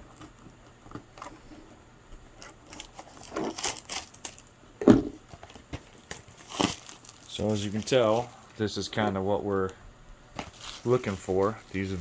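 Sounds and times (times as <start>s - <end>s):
cardboard box rustling and scraping: 2.4s - 4.2s, 5.4s - 8.4s, 10.4s - 12.0s.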